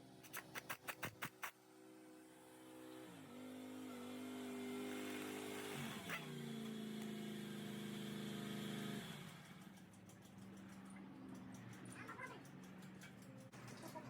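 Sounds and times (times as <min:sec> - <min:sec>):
scooter engine running: 0:03.4 - 0:14.0.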